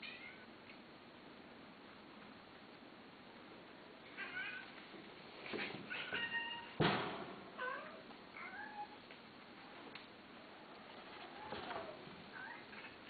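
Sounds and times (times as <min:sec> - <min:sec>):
cat meowing: 0:04.2 - 0:04.7, 0:07.6 - 0:09.0
thud: 0:06.8 - 0:07.4.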